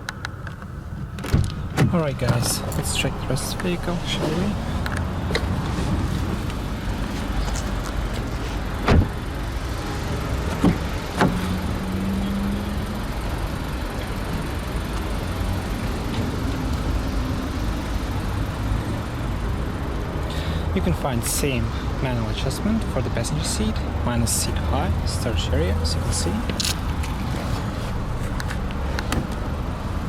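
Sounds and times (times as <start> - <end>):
steady low rumble: 0.0 - 12.0, 12.7 - 30.0
car doors thudding: 1.0 - 7.4, 8.1 - 9.2, 10.5 - 11.5, 26.4 - 29.6.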